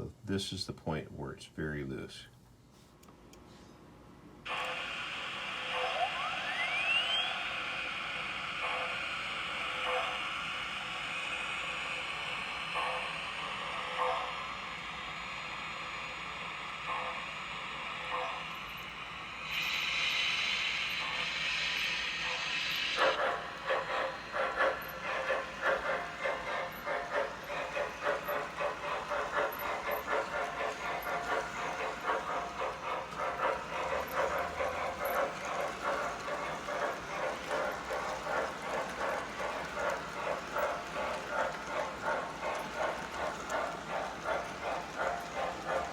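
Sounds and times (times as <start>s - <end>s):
model steam locomotive chuffing: 4.5s - 45.9s.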